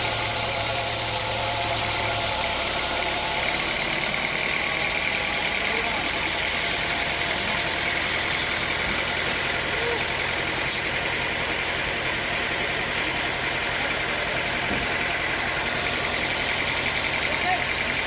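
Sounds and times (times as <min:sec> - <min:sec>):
high machine whine: 0:00.0 - 0:11.8
sawmill machinery hum: 0:00.0 - 0:18.0.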